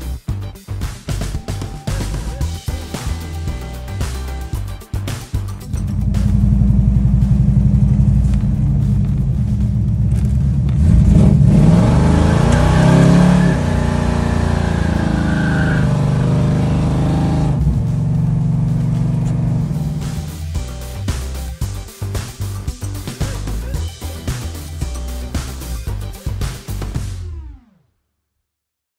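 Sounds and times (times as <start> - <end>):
car engine revving: 5.0 - 21.6.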